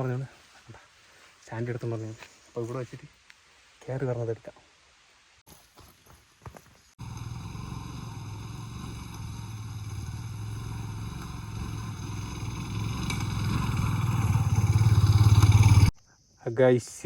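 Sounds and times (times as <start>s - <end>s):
motorcycle engine pulling uphill: 7.0s - 15.9s.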